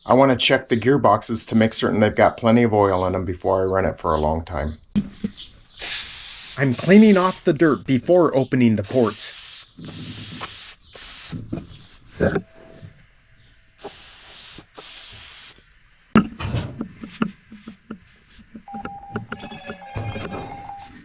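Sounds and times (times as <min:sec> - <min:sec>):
spray hissing: 0:05.8 - 0:07.8, 0:08.8 - 0:12.0, 0:13.8 - 0:15.7.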